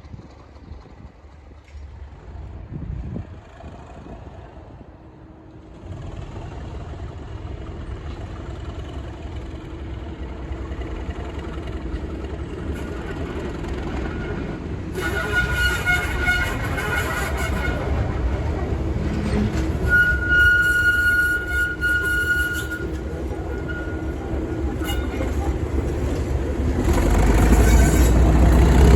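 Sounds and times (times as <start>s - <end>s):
diesel locomotive engines: 0.0s - 28.9s
high whistling tone: 19.8s - 24.2s.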